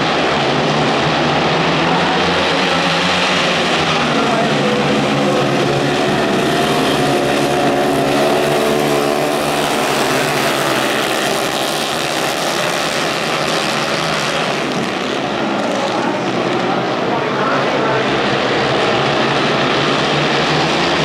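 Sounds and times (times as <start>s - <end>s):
racing motorcycles at high revs: 0.0s - 16.8s.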